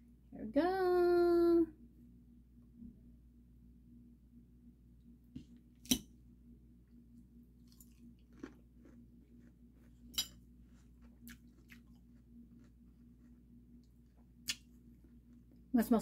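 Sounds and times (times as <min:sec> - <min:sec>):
chewing crisp lettuce: 0:07.6 - 0:15.7.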